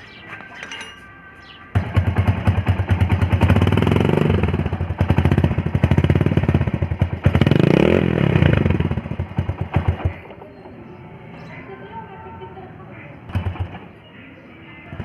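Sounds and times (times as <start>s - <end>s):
motorcycle engine revving: 1.8s - 10.3s.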